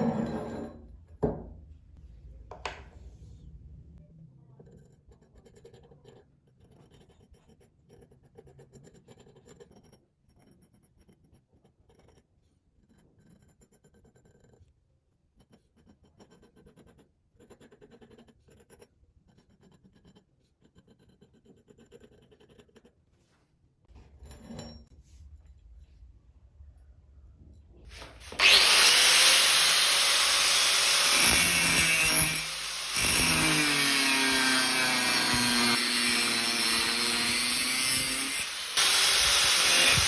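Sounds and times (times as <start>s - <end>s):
faint scratching on metal: 4.5s - 14.7s.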